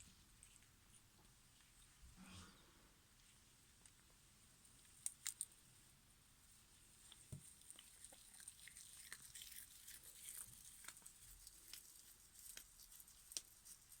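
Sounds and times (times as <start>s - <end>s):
cat chewing foil tinsel: 7.1s - 14.0s.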